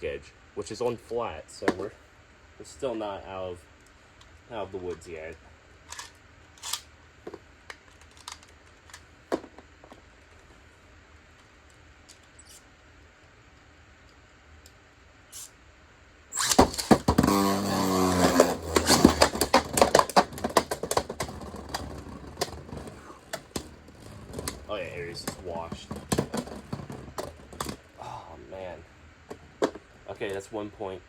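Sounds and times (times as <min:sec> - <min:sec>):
ripcord launcher whirr: 0:05.8 - 0:07.0, 0:16.3 - 0:27.9.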